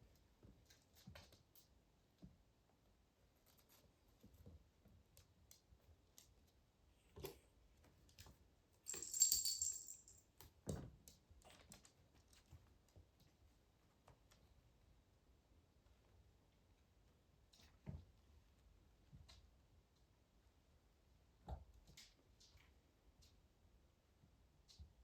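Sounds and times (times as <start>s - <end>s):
high jingling rattle: 8.9s - 10.2s.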